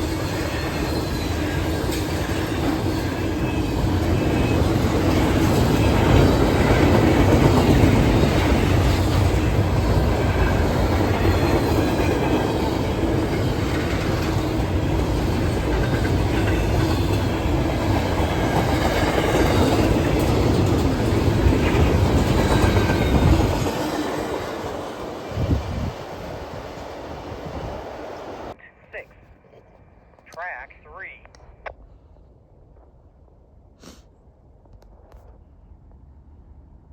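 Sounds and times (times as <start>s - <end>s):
train wheels rumbling on rails: 0.0s - 28.6s.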